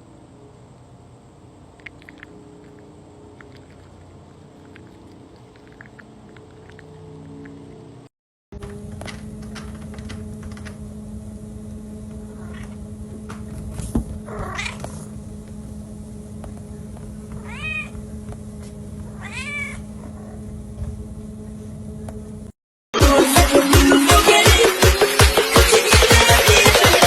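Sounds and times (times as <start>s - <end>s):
steady hum: 0.0s - 22.6s
cat meowing: 14.3s - 15.0s, 17.4s - 18.0s, 19.1s - 20.4s
loud upbeat music: 23.0s - 27.0s.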